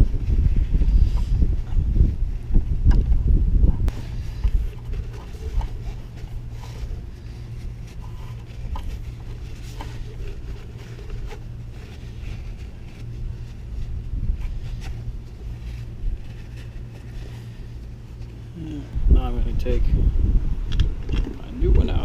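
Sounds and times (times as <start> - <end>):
wind rumble on microphone: 0.0 - 18.2, 18.9 - 22.0.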